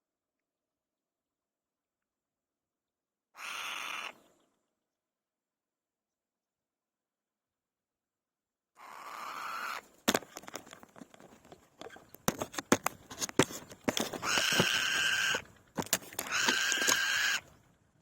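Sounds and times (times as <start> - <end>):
sharp clicks and rustles: 10.0 - 17.5
bird nestling rasping call: 13.4 - 17.5
nestling begging call: 14.2 - 15.5, 16.2 - 17.5.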